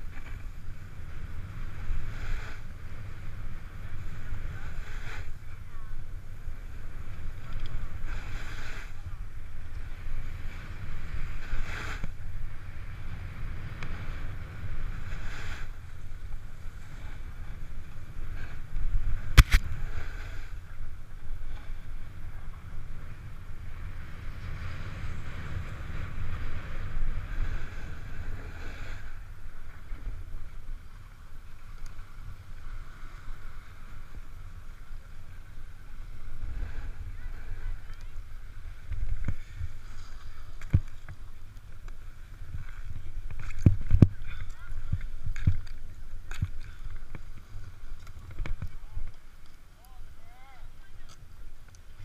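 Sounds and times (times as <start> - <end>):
snowboard scraping over snow: 0.0 - 31.1
wind buffeting microphone: 0.0 - 49.3.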